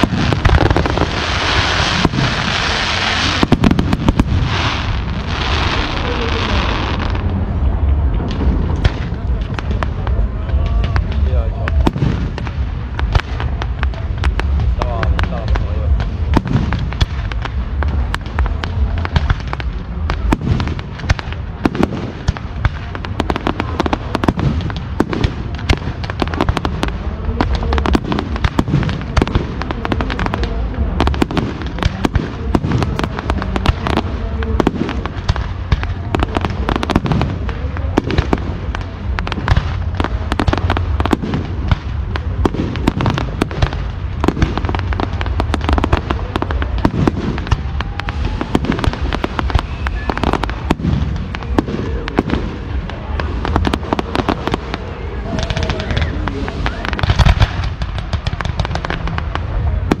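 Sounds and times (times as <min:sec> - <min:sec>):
firework bangs and crackle: 0:00.0 - 1:00.0
firework whistle rising: 0:47.4 - 0:50.7.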